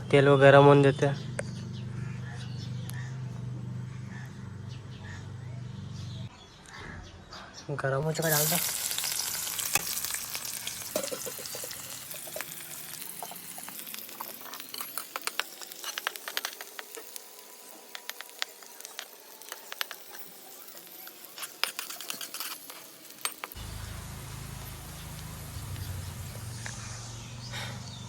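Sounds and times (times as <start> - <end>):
onions frying in oil: 8.0 - 28.0
oil crackles and pops: 8.1 - 27.2.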